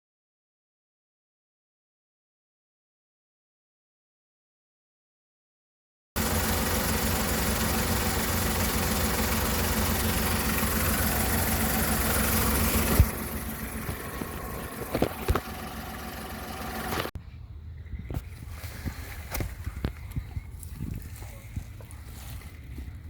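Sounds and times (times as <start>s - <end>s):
car engine idling: 6.2s - 17.2s.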